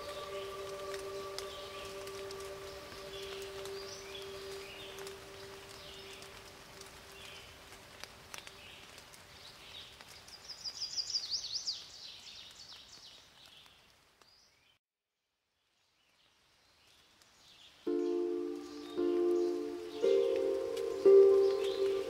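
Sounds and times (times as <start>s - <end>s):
birds chirping: 0.0s - 7.6s, 17.9s - 22.0s.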